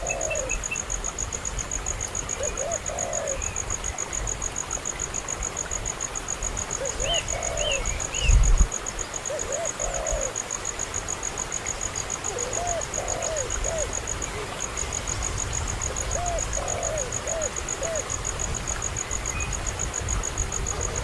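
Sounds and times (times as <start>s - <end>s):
dove cooing: 0.0s - 0.7s, 2.2s - 3.5s, 6.8s - 8.1s, 9.3s - 10.4s, 12.2s - 14.7s, 15.8s - 18.4s, 20.6s - 21.0s
cricket chirping: 0.0s - 21.0s.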